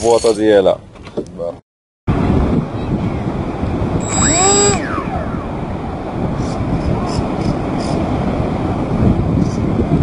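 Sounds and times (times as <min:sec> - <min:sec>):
wind noise: 0:02.1 - 0:10.0
electric model plane motor whine: 0:04.0 - 0:04.8.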